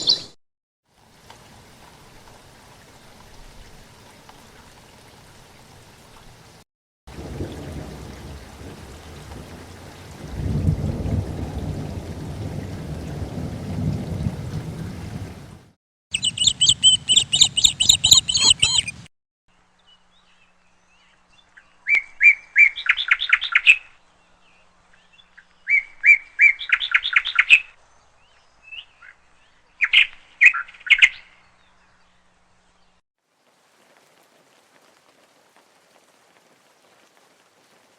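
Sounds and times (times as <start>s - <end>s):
songbird chirping and trilling: 0.0s - 0.4s, 16.1s - 19.0s, 19.6s - 33.0s
steady rain: 0.9s - 15.8s, 33.2s - 37.9s.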